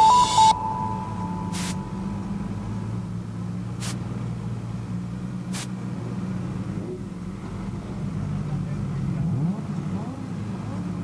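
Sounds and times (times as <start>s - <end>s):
car engine idling: 0.5s - 11.0s
short bursts of noise: 1.5s - 1.8s.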